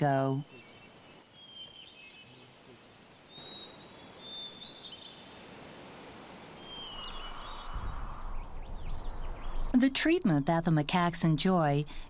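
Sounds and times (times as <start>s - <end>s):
outdoor hiss: 0.0s - 9.9s
birds whistling: 0.5s - 2.5s, 3.3s - 5.5s, 6.6s - 9.8s
rushing noise: 6.6s - 9.6s.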